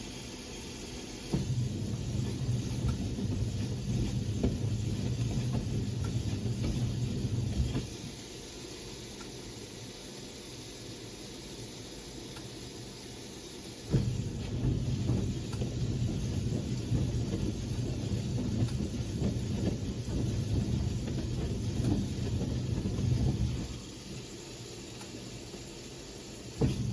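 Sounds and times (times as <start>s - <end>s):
steady hiss: 0.0s - 26.9s
washing machine drum turning: 1.1s - 8.2s, 13.8s - 25.3s, 26.4s - 26.9s.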